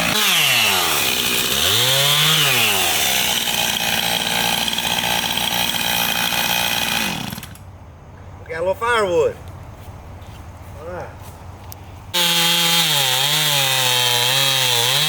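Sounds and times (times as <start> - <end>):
chainsaw cutting wood: 0.0 - 7.6, 12.1 - 15.0.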